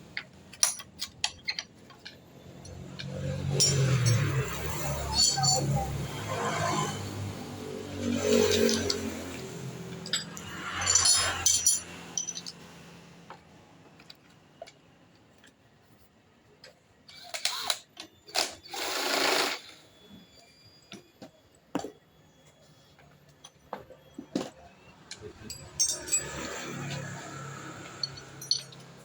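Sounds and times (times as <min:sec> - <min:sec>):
tools and metal parts clinking: 0:00.0 - 0:15.6, 0:23.0 - 0:29.0.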